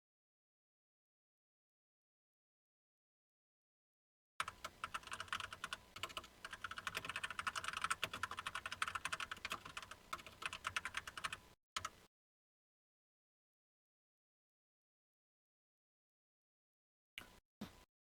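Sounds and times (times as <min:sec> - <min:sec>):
computer keyboard typing: 0:04.4 - 0:12.0.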